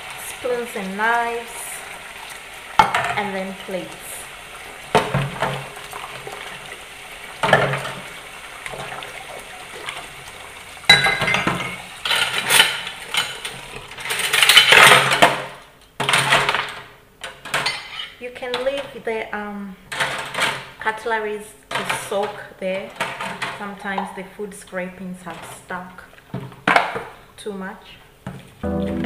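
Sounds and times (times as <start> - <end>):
dishes clinking: 10.9 - 13.5.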